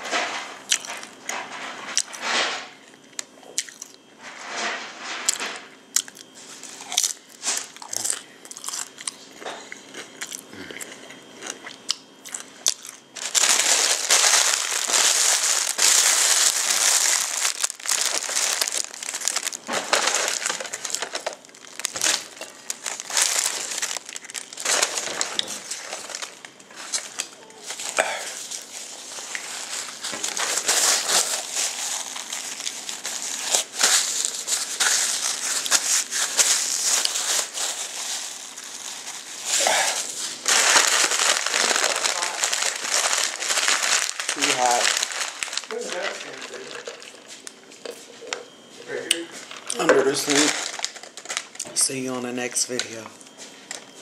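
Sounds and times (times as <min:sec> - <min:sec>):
chewing crunchy taco: 0:00.7 - 0:01.2, 0:03.0 - 0:04.1, 0:05.3 - 0:19.7
paper crinkling: 0:13.1 - 0:47.6, 0:49.4 - 0:53.0.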